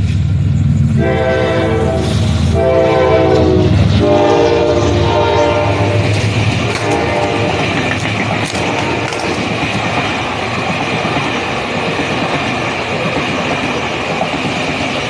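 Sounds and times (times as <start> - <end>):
moving train rumble: 0.0 - 15.0
train horn blasts: 0.9 - 9.5.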